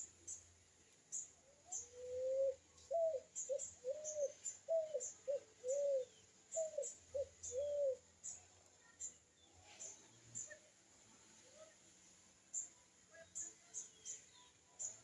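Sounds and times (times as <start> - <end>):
dove cooing: 1.6 - 8.1.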